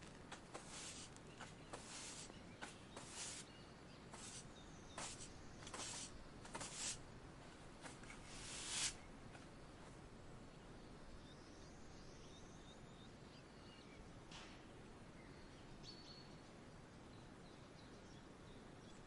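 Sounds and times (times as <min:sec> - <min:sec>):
dry leaves rustling: 0:00.0 - 0:03.4
faint bird chirps: 0:00.5 - 0:07.0, 0:15.1 - 0:19.0.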